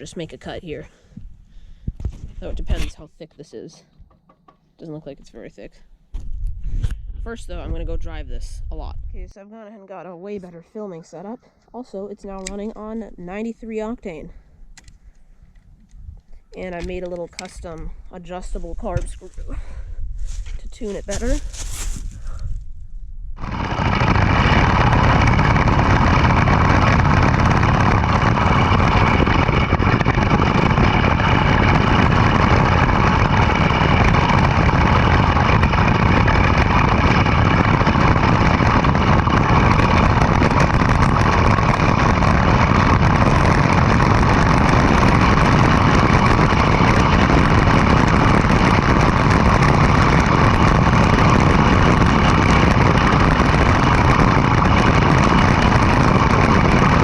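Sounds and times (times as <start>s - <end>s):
go-kart engine running: 23.4s - 57.0s.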